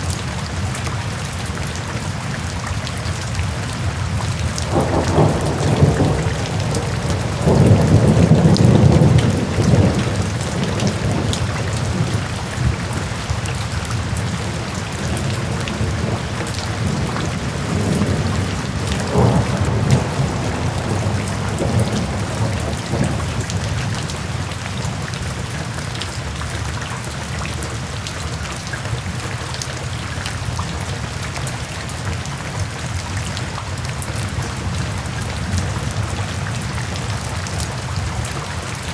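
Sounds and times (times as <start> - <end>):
steady rain: 0.0 - 38.9
thunder rumbling: 4.3 - 24.7.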